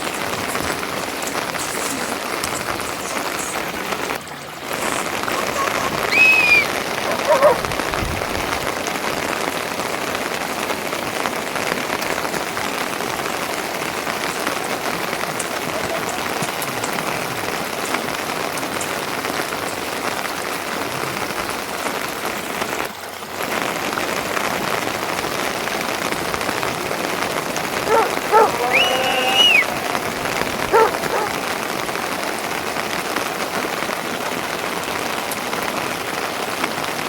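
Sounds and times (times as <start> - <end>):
steady rain hiss: 0.0 - 37.0
short pitched call: 5.3 - 6.7, 28.4 - 31.3.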